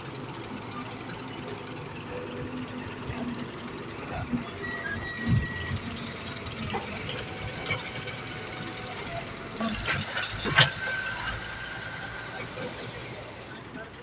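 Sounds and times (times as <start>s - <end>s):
excavator running: 0.0s - 14.0s.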